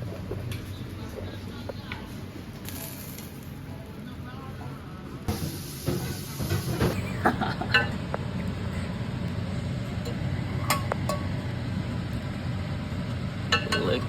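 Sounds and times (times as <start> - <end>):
utensils clinking on plates: 5.9 - 9.0, 9.8 - 11.5, 13.5 - 14.0.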